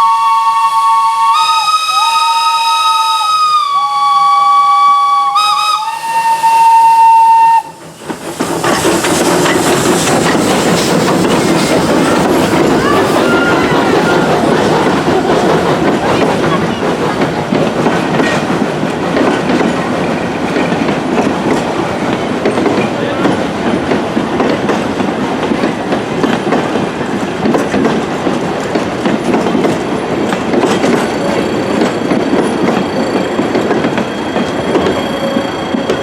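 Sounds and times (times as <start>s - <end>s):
train rumbling along track: 0.0s - 36.0s
wheels clattering over rails: 7.8s - 36.0s.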